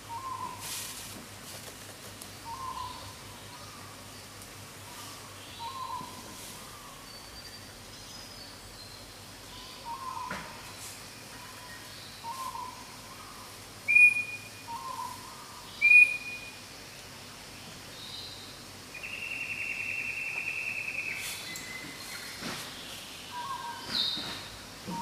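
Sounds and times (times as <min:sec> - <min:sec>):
sharp whistled bird calls: 0:13.9 - 0:15.2, 0:15.8 - 0:16.6, 0:19.0 - 0:21.9.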